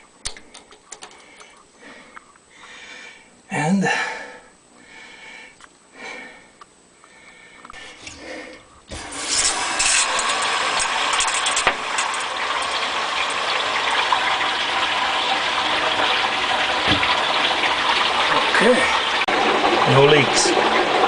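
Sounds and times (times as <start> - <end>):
water rushing through pipe: 8.9 - 21.0.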